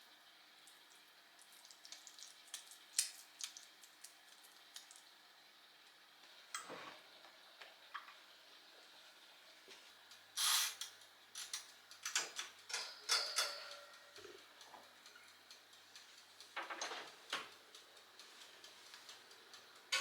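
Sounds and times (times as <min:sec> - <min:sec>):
light clicks and taps: 0:10.8 - 0:20.0.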